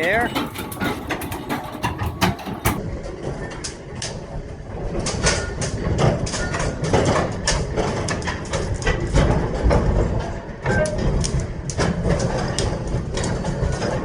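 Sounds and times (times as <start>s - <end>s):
metallic clanks and knocks: 0.0s - 2.8s.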